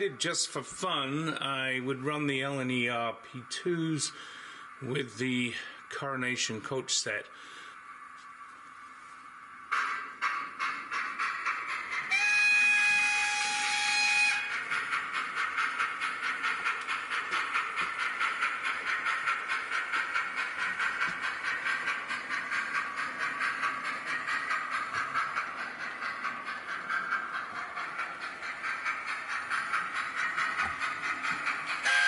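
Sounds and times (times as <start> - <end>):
steam locomotive chuffing: 0.0 - 32.0
steam hiss: 9.7 - 32.0
steam locomotive whistle: 12.1 - 14.5.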